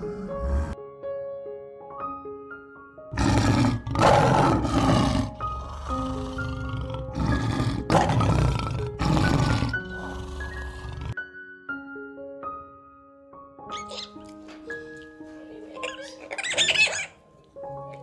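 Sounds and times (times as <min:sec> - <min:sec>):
soft background music: 0:00.0 - 0:18.0
lion roaring: 0:03.1 - 0:11.2.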